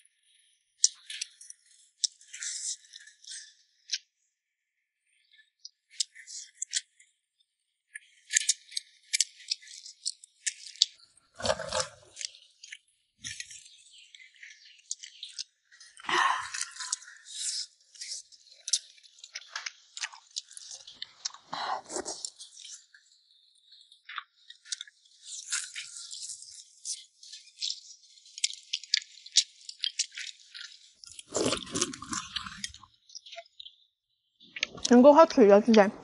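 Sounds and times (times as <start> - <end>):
person chewing and crunching: 8.3 - 23.0, 23.7 - 32.9.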